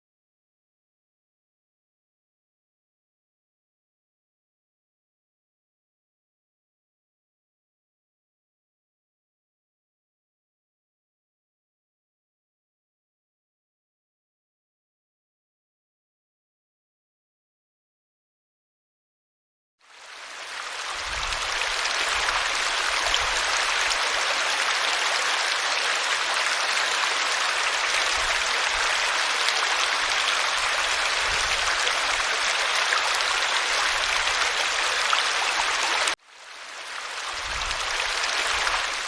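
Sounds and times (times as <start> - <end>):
running water rushing: 19.9 - 39.0.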